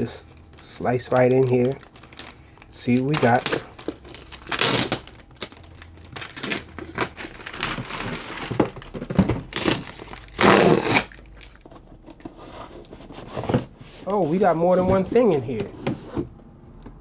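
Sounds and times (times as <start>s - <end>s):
packing crumpling and tearing: 0.4s - 12.2s.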